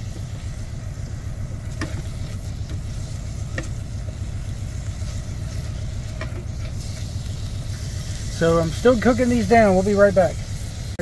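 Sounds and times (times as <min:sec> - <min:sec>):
mushrooms and onions sizzling: 0:00.0 - 0:11.0
steady low rumble: 0:00.0 - 0:11.0
sharp pops: 0:01.7 - 0:08.4.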